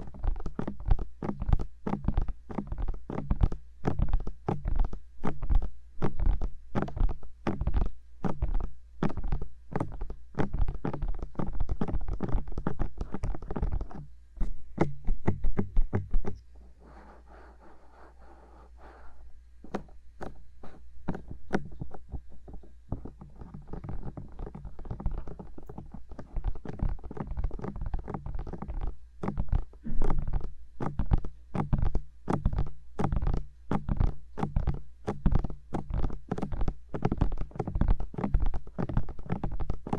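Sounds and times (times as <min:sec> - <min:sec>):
soft rubbing on microphone: 0:00.0 - 0:30.5
fingertips tapping on microphone: 0:00.0 - 0:39.9.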